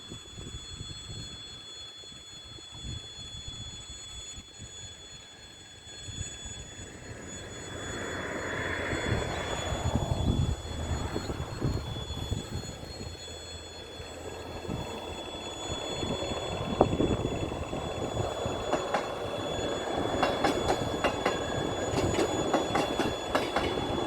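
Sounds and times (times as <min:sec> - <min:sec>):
train rumble and wheel noise: 0:06.4 - 0:24.0.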